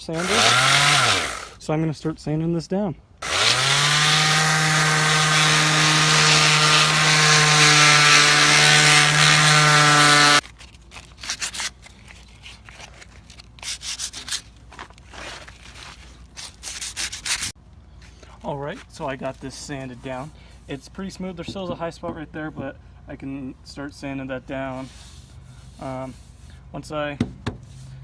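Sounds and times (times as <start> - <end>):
electric sander running: 0.0 - 1.6, 3.2 - 10.4
rubbing strokes: 4.1 - 17.6, 24.7 - 26.6.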